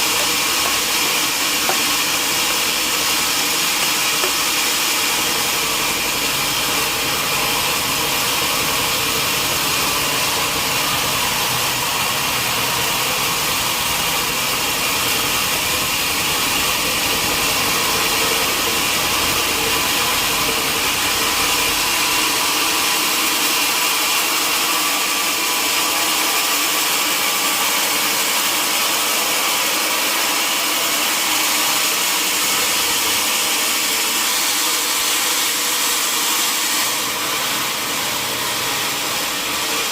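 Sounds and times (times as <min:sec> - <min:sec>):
sawmill machinery hiss and whir: 0:00.0 - 0:39.9.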